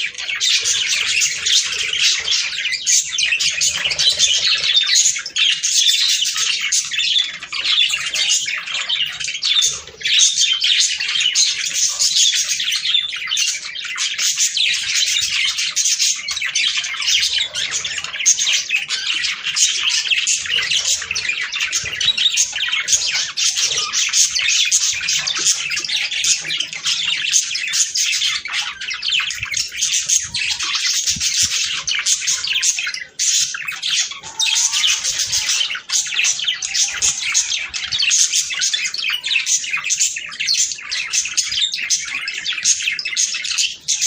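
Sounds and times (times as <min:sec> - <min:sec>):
budgerigars chattering: 0:00.0 - 0:44.0.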